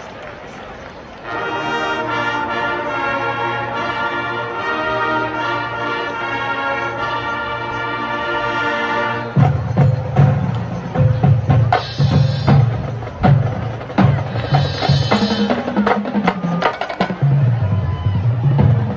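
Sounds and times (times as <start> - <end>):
brass band sustained chord: 1.2 - 9.8.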